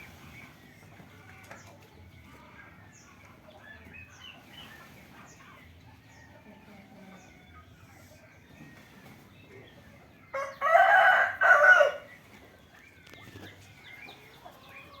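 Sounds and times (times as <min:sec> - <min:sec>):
rooster crowing: 0:10.4 - 0:12.1.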